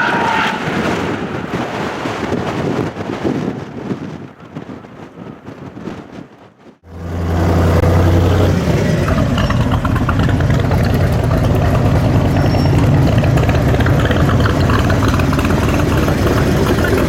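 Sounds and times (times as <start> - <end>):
car engine idling: 6.9 - 17.0
low hum: 6.9 - 17.0.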